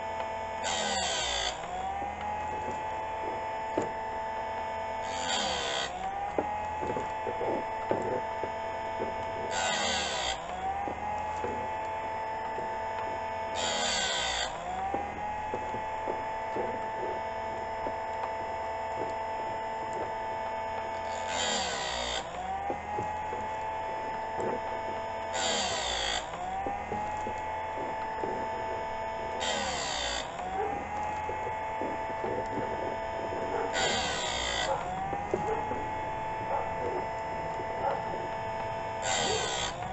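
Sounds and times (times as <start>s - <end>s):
motor whine: 0.0s - 39.9s
chain sharpener grinding bursts: 25.3s - 26.4s, 27.1s - 35.0s.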